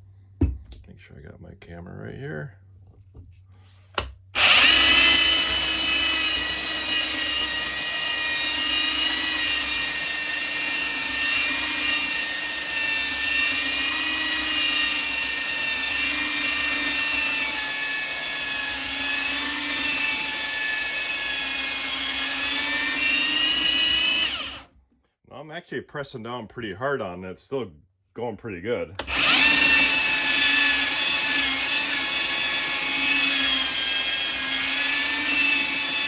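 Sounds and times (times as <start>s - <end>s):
belt sander sanding wood: 4.4s - 19.3s, 29.1s - 36.0s.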